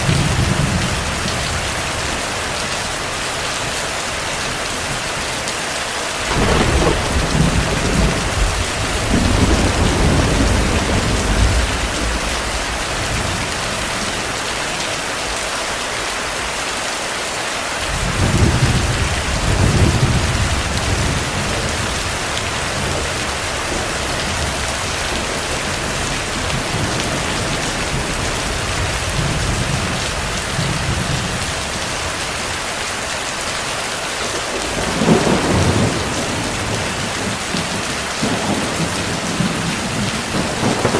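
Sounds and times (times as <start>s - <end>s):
heavy rain: 0.0s - 40.9s
thunder rolling: 6.3s - 14.4s, 34.2s - 40.9s.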